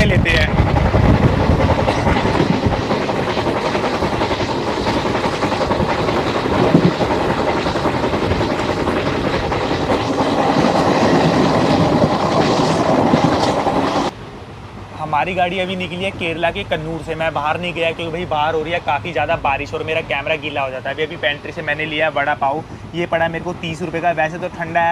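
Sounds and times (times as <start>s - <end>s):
train wheels rolling: 0.0s - 14.2s
rush of wind: 0.0s - 24.9s.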